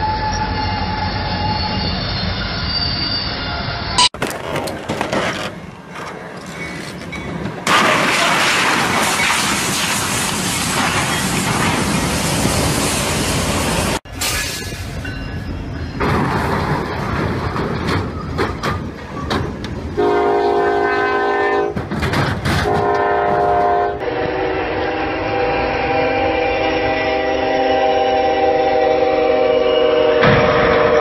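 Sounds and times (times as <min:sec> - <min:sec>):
freight train rumbling and clattering: 0:04.0 - 0:24.5
locomotive air horn chord: 0:20.0 - 0:21.8, 0:22.6 - 0:31.0.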